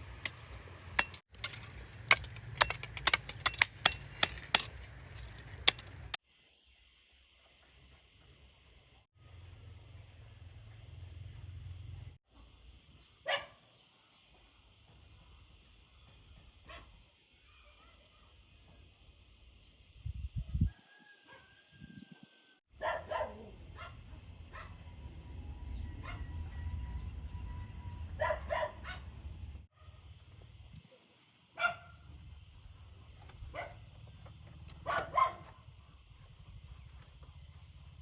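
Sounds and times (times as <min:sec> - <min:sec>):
dog barking: 0:13.2 - 0:13.7, 0:16.6 - 0:16.9, 0:17.5 - 0:18.3, 0:22.8 - 0:24.8, 0:26.0 - 0:26.4, 0:28.2 - 0:29.1, 0:31.6 - 0:32.0, 0:33.5 - 0:33.8, 0:34.8 - 0:35.6.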